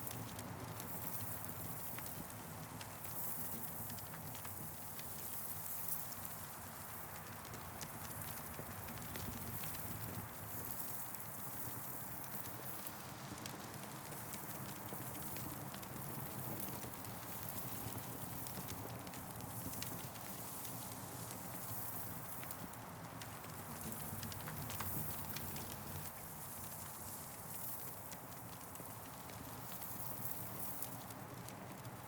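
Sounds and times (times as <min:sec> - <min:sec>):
campfire crackling: 0:11.6 - 0:32.0.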